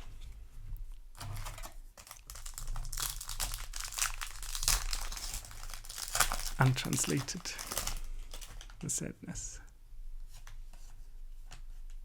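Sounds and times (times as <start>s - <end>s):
foil wrapper crinkling: 1.2s - 8.9s.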